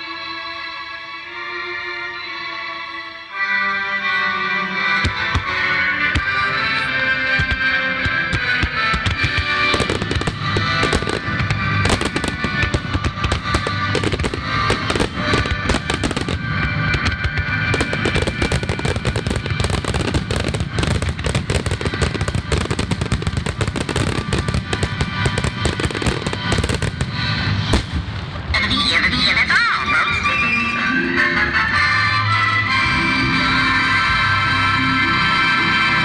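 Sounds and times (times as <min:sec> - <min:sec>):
music: 0:00.0 - 0:36.0
fireworks bursting and crackling: 0:04.9 - 0:30.7.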